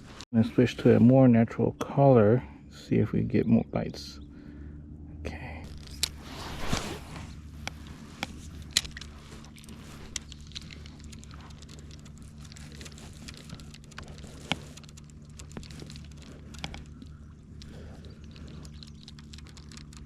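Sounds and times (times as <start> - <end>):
low hum: 0.0 - 20.0
fishing tackle clicks and rustles: 5.6 - 20.0
sharp clicks: 7.6 - 20.0.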